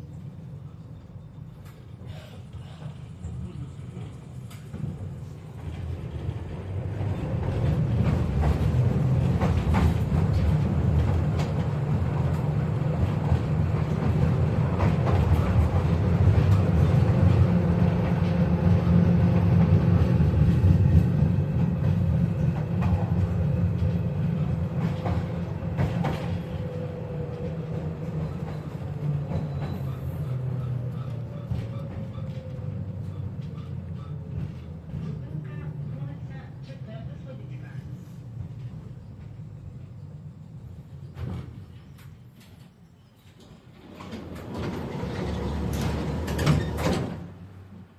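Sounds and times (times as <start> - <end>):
tram wheels rumbling on rails: 0.0 - 47.9
clacks from rail joints: 4.0 - 36.3, 41.1 - 47.5.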